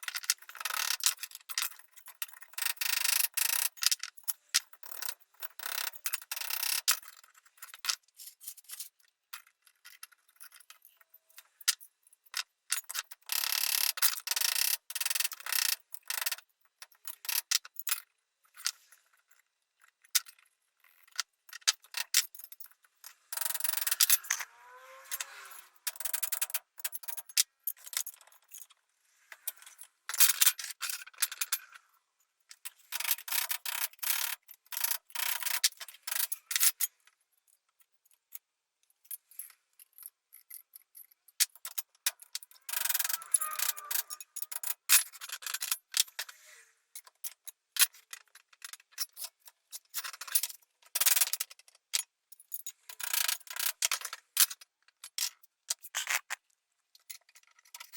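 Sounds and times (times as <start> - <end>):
scraping and rubbing by hand: 23.0 - 25.9, 42.5 - 44.5
brief squeak: 43.1 - 44.4.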